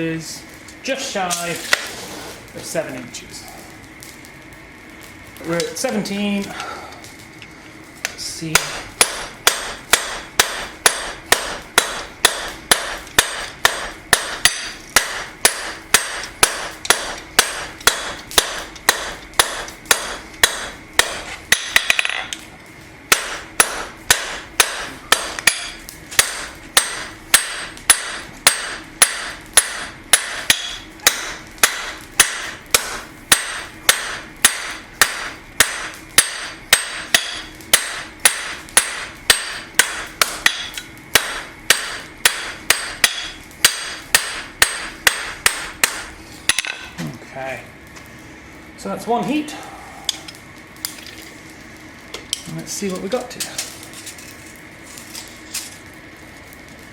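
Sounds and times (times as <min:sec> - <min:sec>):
hammer striking steel on anvil: 0:08.5 - 0:22.4, 0:23.1 - 0:47.0.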